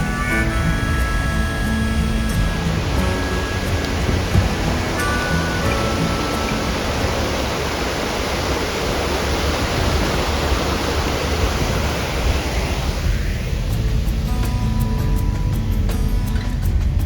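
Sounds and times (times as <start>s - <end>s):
rushing water of a stream: 0.0s - 16.6s.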